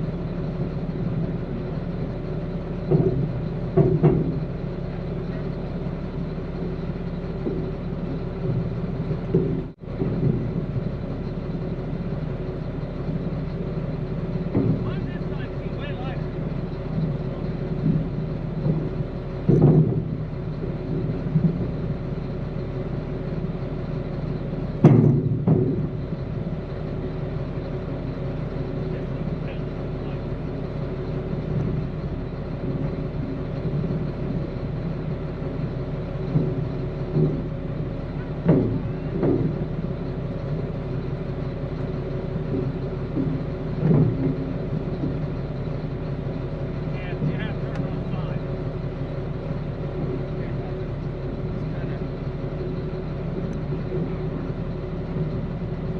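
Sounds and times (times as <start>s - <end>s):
vehicle engine idling: 0.0s - 55.9s
short knocks: 2.7s - 5.6s, 14.4s - 16.3s, 17.0s - 21.9s, 24.8s - 26.2s, 36.0s - 40.0s, 42.0s - 45.8s.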